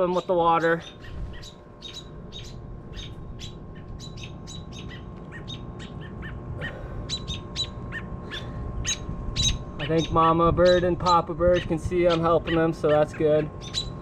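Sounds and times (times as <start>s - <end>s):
low steady rumble: 0.0s - 14.0s
small birds chirping: 0.0s - 14.0s.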